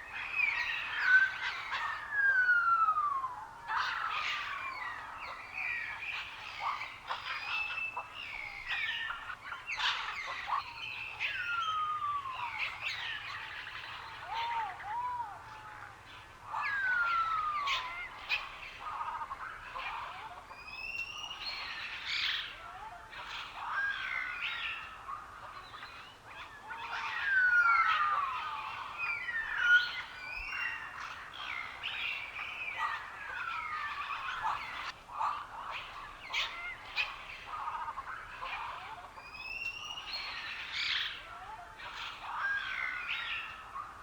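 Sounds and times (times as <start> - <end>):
wild birds singing: 0.0 - 44.0.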